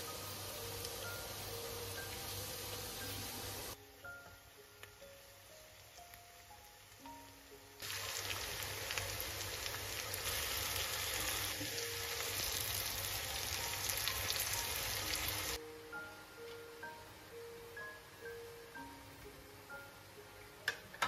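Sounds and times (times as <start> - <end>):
rain-like rushing hiss: 0.0 - 3.8, 7.8 - 15.6.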